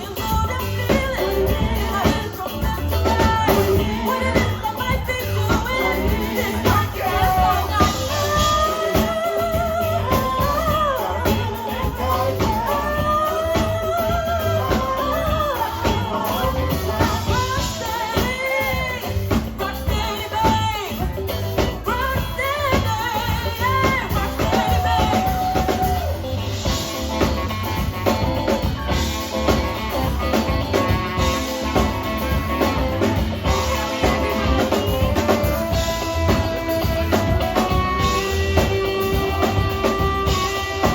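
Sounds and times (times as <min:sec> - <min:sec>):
live band playing: 0:00.0 - 0:40.9
person singing with vibrato: 0:00.0 - 0:40.9.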